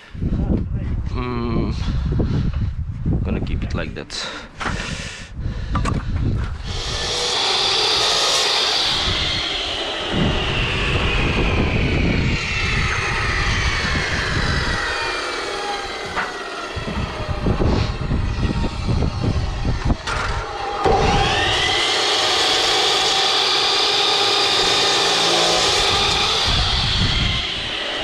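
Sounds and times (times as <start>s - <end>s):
rumbling and knocks: 5.7s - 28.0s
power tool whining: 5.8s - 28.0s.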